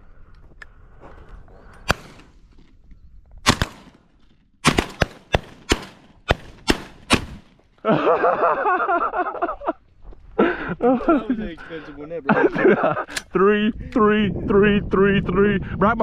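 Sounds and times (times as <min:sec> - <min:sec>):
shotgun shots: 0:01.9 - 0:02.4, 0:03.4 - 0:07.6.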